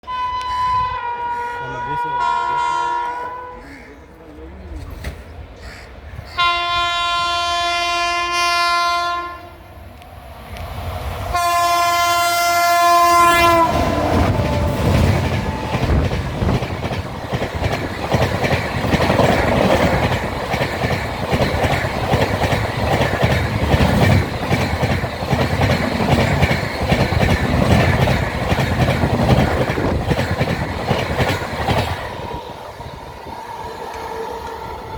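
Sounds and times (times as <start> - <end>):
train horn blasts: 0.0 - 4.0, 6.4 - 9.7, 11.3 - 16.1
train wheels clattering over rails: 13.4 - 34.9.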